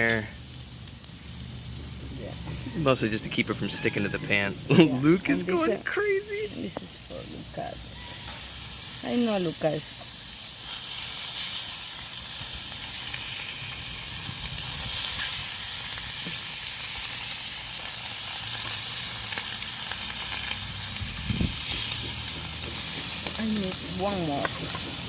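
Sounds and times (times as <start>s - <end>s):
fish sizzling in a pan: 0.0s - 25.0s.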